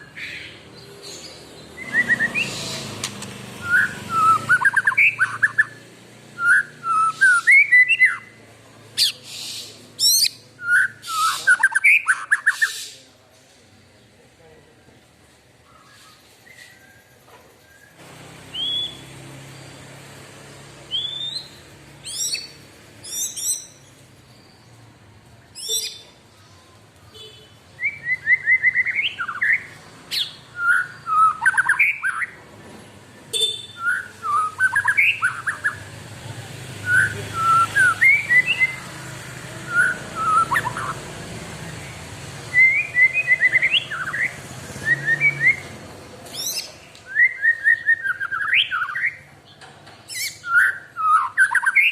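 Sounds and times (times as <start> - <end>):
sharp high bird calls: 0.0 - 5.8, 6.4 - 8.3, 33.3 - 35.8
bird singing whistled phrases: 1.7 - 2.9, 3.6 - 5.8, 6.4 - 8.3, 10.0 - 12.8, 18.5 - 19.9, 20.9 - 23.8, 27.2 - 32.3, 33.5 - 35.8, 36.8 - 38.8, 39.7 - 41.0, 42.5 - 45.7, 46.4 - 49.3, 50.1 - 51.9.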